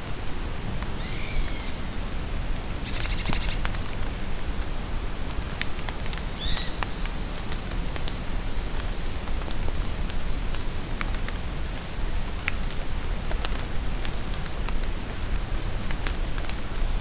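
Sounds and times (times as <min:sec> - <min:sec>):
rain falling in forest: 0:00.0 - 0:17.0
songbirds calling: 0:00.8 - 0:02.0, 0:02.8 - 0:04.9, 0:06.1 - 0:07.4.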